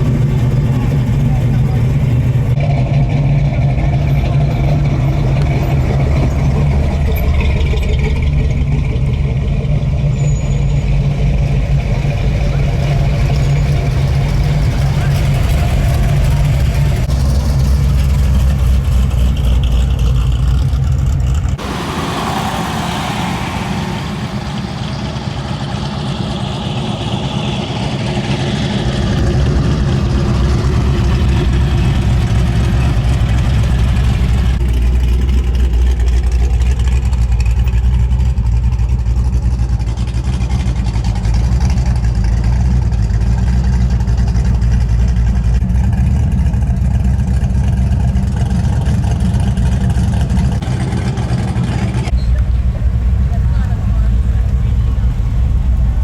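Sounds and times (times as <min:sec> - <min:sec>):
car engines droning: 0:00.0 - 0:56.0
vehicle passing by: 0:21.6 - 0:34.6.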